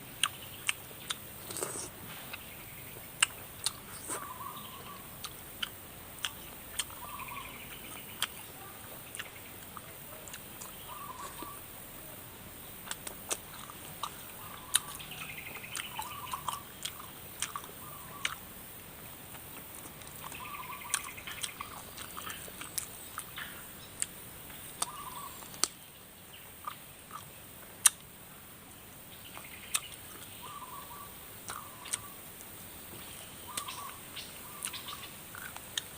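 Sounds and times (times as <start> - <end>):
chewing and biting: 0.2 - 2.4, 3.2 - 4.4, 5.2 - 8.4, 9.1 - 11.6, 12.8 - 18.4, 19.3 - 24.1, 31.4 - 32.0, 34.6 - 35.9
bird calling: 0.2 - 5.4, 6.2 - 12.2, 13.5 - 18.5, 19.7 - 25.8, 29.2 - 32.3, 32.9 - 35.6.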